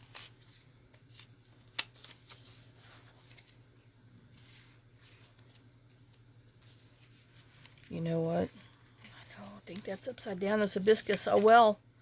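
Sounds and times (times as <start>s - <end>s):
paper rustling and sliding: 0.0s - 9.4s
faint steady hum: 0.0s - 12.0s.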